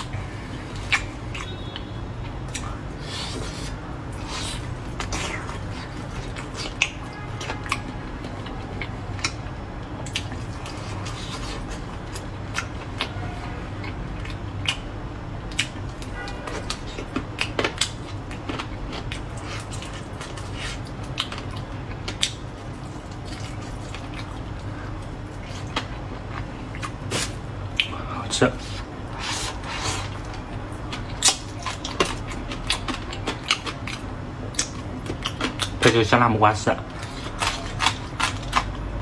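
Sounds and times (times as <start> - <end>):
chewing food: 0.0 - 36.0, 36.9 - 39.0
wet mouth smacks and clicks: 0.8 - 1.5, 26.8 - 28.0.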